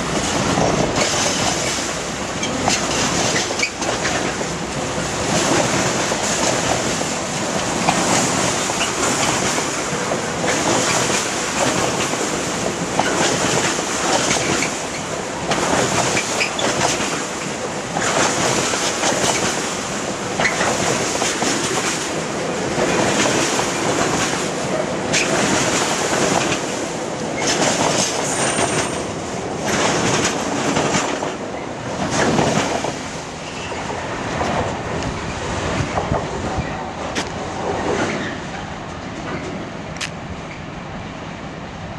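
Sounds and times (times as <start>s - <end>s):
train wheels clattering over rail joints: 0.1s - 40.6s.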